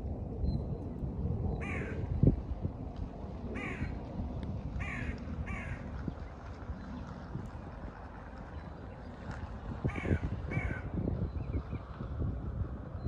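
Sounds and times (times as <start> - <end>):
steady low rumble: 0.0 - 13.0
bird cawing: 1.6 - 2.0, 3.6 - 4.0, 4.8 - 5.9, 9.9 - 10.9.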